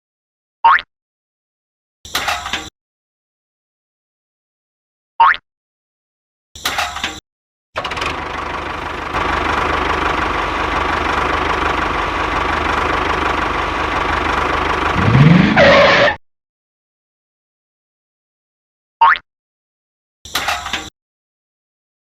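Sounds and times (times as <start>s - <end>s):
motor running: 7.8s - 15.5s.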